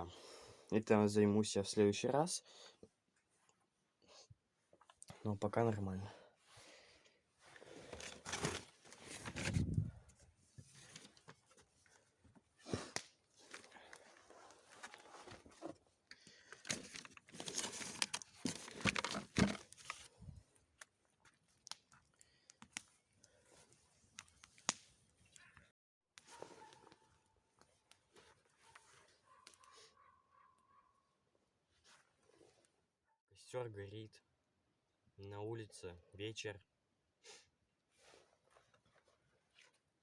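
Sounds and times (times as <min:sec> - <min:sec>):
rustling and crinkling: 0:07.4 - 0:25.6, 0:26.2 - 0:29.7.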